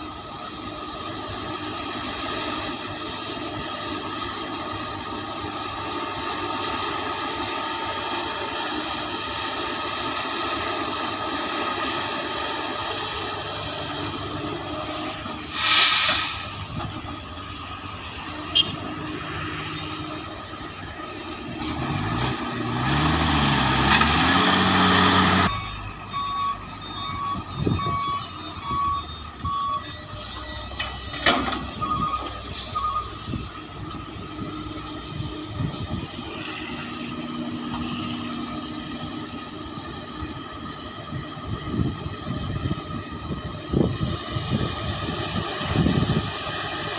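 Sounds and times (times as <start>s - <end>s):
heavy diesel engines humming: 0.0s - 46.9s
sharp air hisses: 15.5s - 16.7s
engine revving under load: 21.3s - 28.0s
reversing alarm beeps: 25.5s - 31.0s, 31.8s - 33.2s.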